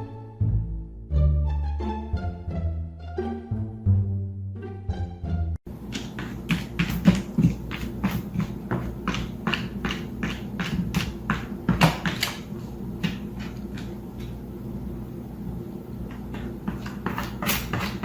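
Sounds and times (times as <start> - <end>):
regular tapping: 5.7 - 14.4
steady low hum: 5.7 - 18.0.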